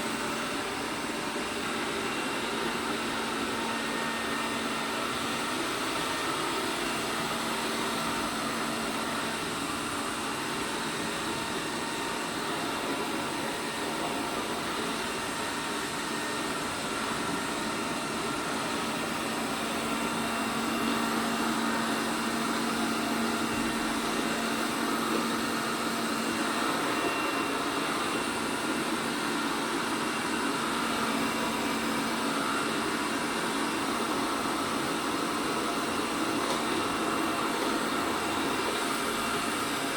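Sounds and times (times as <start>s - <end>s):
robot vacuum whirring: 12.4s - 39.9s.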